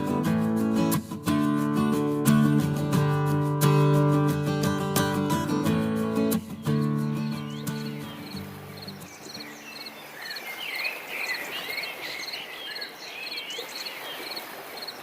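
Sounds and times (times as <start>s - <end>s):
guitar piece: 0.0s - 9.6s
birds whistling and trilling: 6.4s - 15.0s
insect chirping in pulses: 7.7s - 11.0s.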